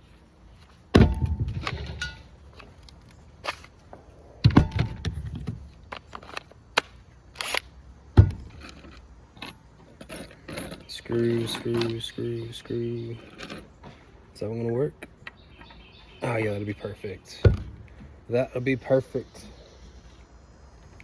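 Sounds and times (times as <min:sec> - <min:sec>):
sharp knocks of wooden pieces: 0:00.9 - 0:02.2.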